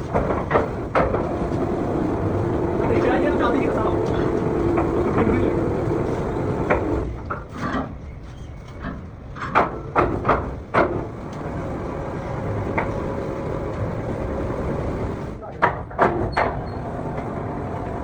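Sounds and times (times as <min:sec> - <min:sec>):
machine hum: 0:00.0 - 0:07.4, 0:10.6 - 0:15.4, 0:16.6 - 0:18.0
sharp knocks: 0:09.4 - 0:11.2, 0:15.5 - 0:16.6.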